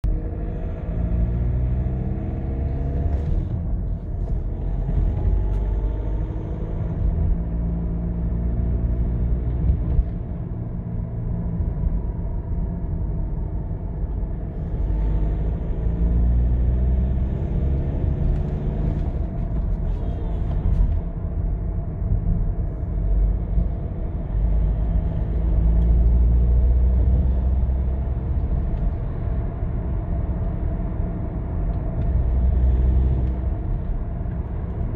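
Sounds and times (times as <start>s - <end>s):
diesel engine running: 0.0s - 8.3s.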